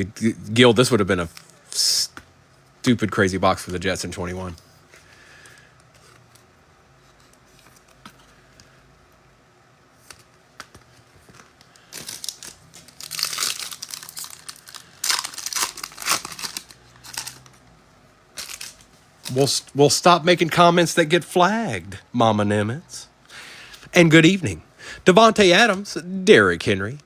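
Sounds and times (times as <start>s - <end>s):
foil wrapper tearing and crinkling: 11.8s - 17.5s, 18.4s - 19.5s.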